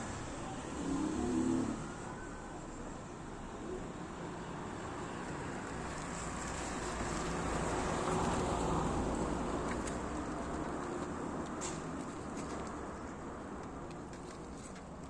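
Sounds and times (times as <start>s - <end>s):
vehicle passing: 0.2s - 2.0s.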